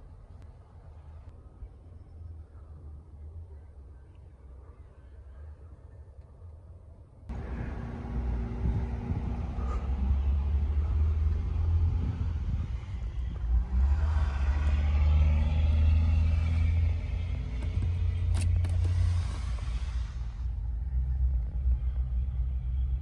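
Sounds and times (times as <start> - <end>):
vehicle engine rumbling: 7.1 - 23.0.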